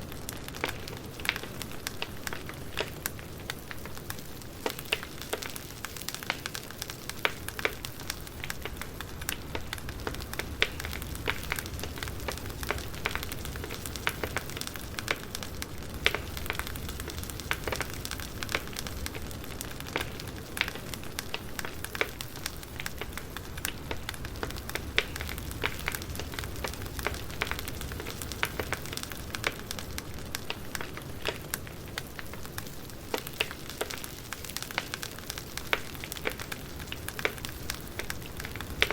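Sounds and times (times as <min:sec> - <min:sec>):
fire pops and snaps: 0:00.0 - 0:38.9
wood fire hissing and rumbling: 0:00.0 - 0:38.9.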